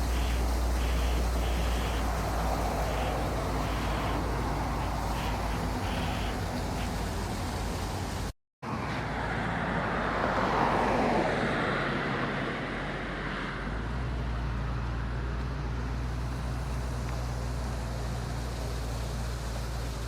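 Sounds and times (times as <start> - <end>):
falling water rushing: 0.0 - 8.3, 16.0 - 20.0
low engine rumble: 0.0 - 8.9, 13.6 - 20.0.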